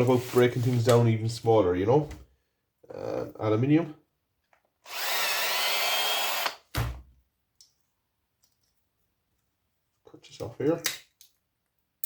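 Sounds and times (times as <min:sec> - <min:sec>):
power tool motor whirring: 0:04.9 - 0:06.6.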